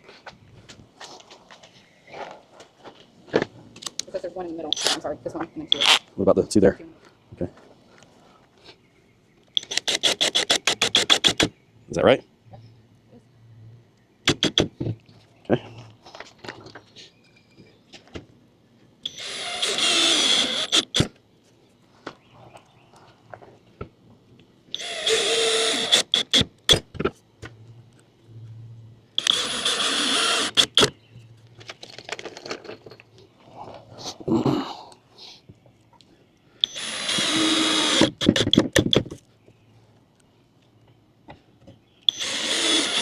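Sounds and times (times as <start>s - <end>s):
power drill driving screws: 9.6s - 11.5s, 14.3s - 14.7s, 19.0s - 21.1s, 24.7s - 26.8s, 29.2s - 31.0s, 36.6s - 39.1s, 42.1s - 43.0s
sharp clicks of drill: 9.6s - 11.5s, 14.2s - 14.7s, 19.0s - 21.2s, 24.7s - 26.9s, 29.2s - 31.0s, 36.6s - 39.2s, 42.1s - 43.0s.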